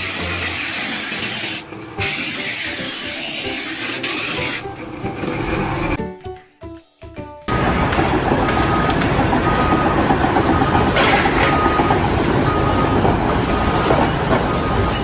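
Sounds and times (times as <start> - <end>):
heavy machinery rumbling and clattering: 7.5 - 15.0
reversing alarm beeping: 7.5 - 15.0.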